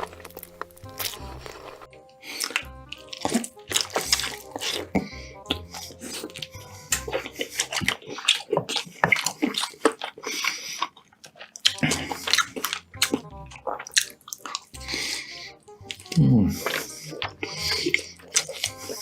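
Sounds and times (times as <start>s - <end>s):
wet chewing and smacking: 0.0s - 19.0s.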